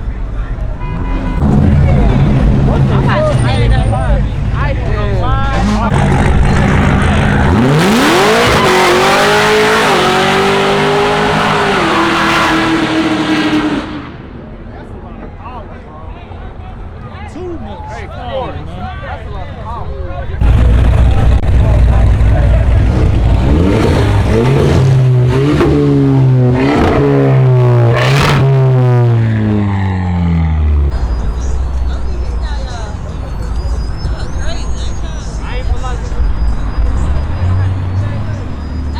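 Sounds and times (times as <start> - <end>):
car engine revving: 1.1 - 14.4, 20.4 - 38.9.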